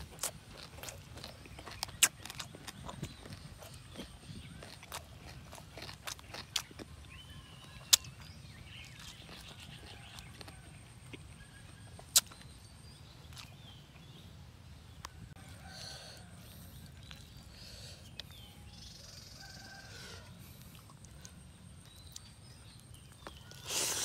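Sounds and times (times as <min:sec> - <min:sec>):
person chewing: 0:00.0 - 0:12.6, 0:13.2 - 0:13.7, 0:16.4 - 0:18.4, 0:20.4 - 0:24.0.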